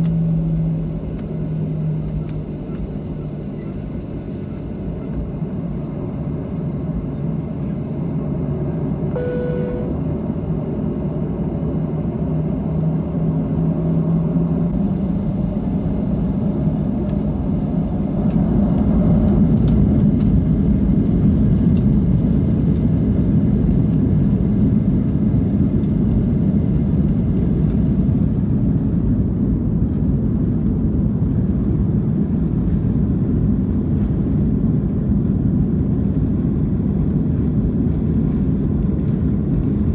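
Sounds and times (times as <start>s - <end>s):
brief tone: 0.0s - 5.0s, 9.1s - 10.1s, 14.8s - 20.0s
jet engine cabin rumble: 0.0s - 12.7s, 14.6s - 39.9s.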